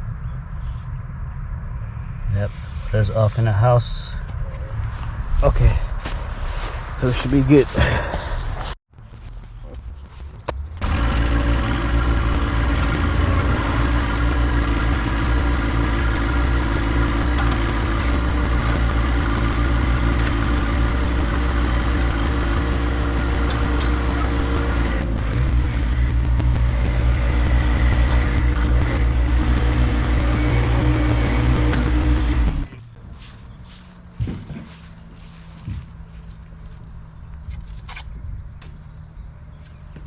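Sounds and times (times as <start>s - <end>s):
tractor diesel engine running: 10.8s - 37.4s.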